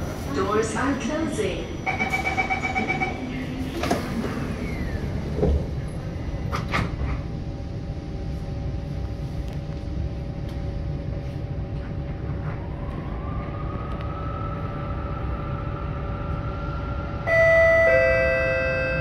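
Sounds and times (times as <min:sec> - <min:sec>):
train low rumble: 0:00.0 - 0:19.0
two-note chime: 0:17.3 - 0:19.0.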